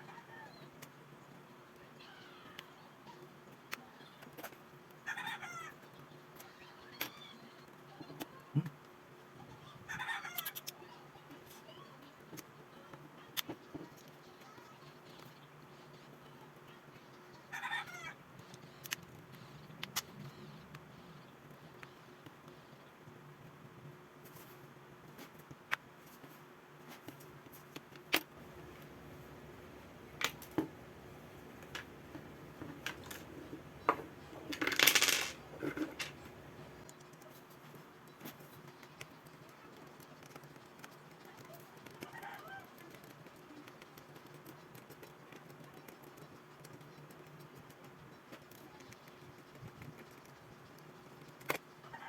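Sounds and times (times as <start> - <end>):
small clicks and taps: 27.1 - 37.4
steady low hum: 28.3 - 34.6.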